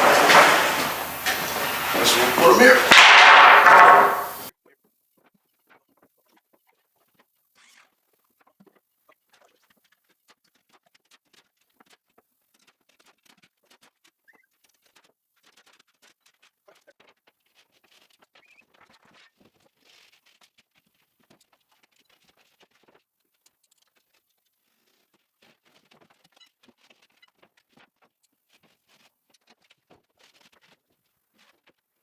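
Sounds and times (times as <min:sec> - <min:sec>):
small objects tapping and clicking: 0:00.0 - 0:04.5.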